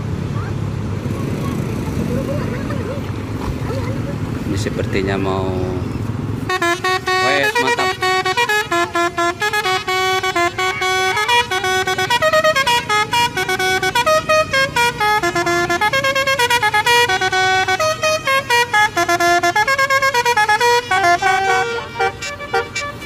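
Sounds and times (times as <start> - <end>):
musical bus horn melody: 6.4 - 23.0.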